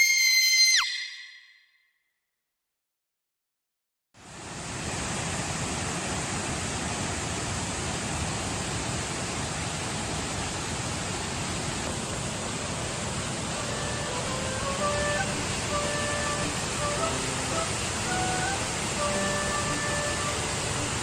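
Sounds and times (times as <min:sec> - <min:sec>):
waterfall rushing: 0:04.3 - 0:21.0.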